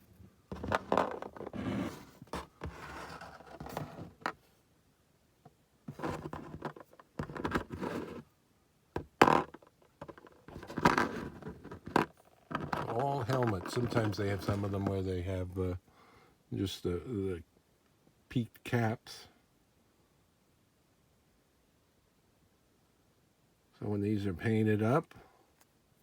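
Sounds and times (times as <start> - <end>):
plastic figures being handled: 0.0 - 4.6, 5.4 - 8.2, 9.0 - 15.2
packaging rustling: 10.1 - 14.9.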